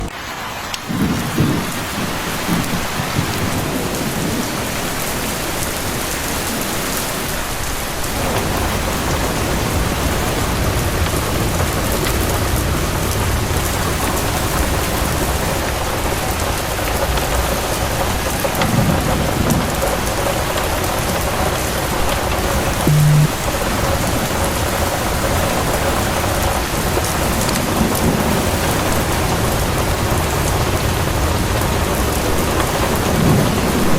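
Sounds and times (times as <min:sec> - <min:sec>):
heavy rain falling: 0:00.0 - 0:33.9
thunder rumbling: 0:00.8 - 0:05.1
brief low tone: 0:22.9 - 0:23.3.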